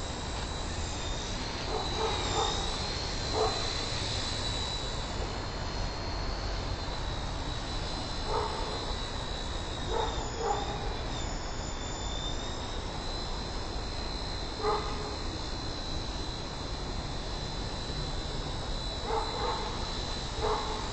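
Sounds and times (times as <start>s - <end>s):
toy helicopter motor whine: 0.0s - 20.9s
dog barking: 1.7s - 2.7s, 3.3s - 3.6s, 8.3s - 8.7s, 9.9s - 10.8s, 14.6s - 15.0s, 19.1s - 19.7s, 20.4s - 20.8s.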